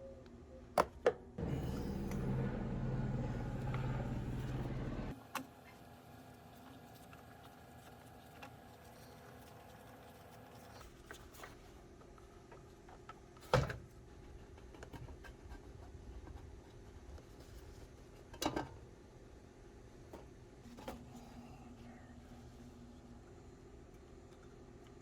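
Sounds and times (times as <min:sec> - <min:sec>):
steady low hum: 0:00.0 - 0:05.2, 0:13.8 - 0:25.0.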